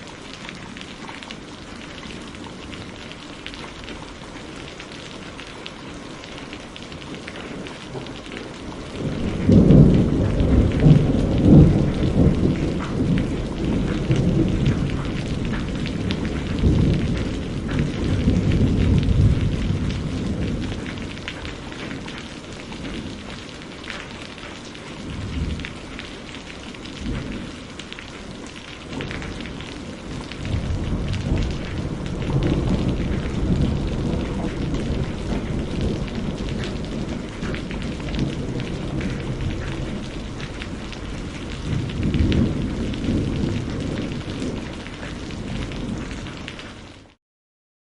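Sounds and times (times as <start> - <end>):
steady rain: 0.0 - 47.2
rolling thunder: 7.6 - 24.0, 25.0 - 46.6.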